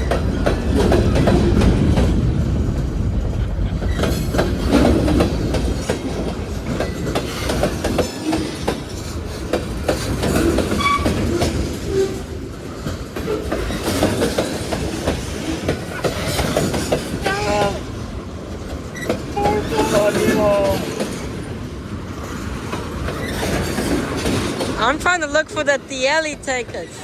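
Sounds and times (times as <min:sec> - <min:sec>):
wheels clacking over rail joints: 0:00.0 - 0:25.9
freight train rumbling past: 0:00.0 - 0:27.0
high wheel squeal: 0:10.5 - 0:12.3.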